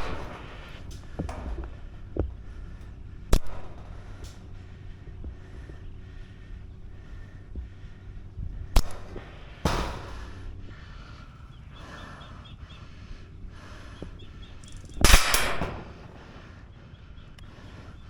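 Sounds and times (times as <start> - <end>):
loud airsoft gun bursts: 0.0 - 1.2, 15.0 - 16.2
faint rapid distant gunfire clicking: 0.0 - 4.4, 8.7 - 10.4, 14.6 - 16.4.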